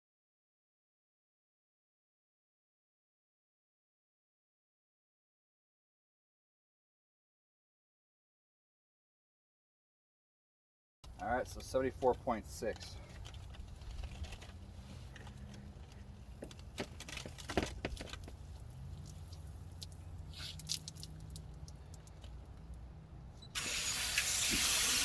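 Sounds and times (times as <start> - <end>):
shower water gushing: 23.6 - 25.0.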